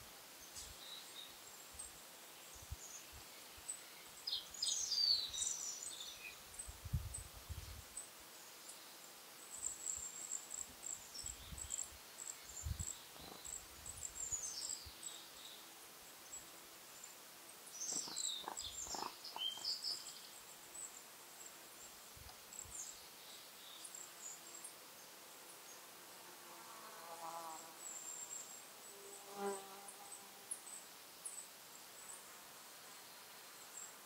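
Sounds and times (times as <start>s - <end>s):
small birds chirping: 0.4s - 25.9s.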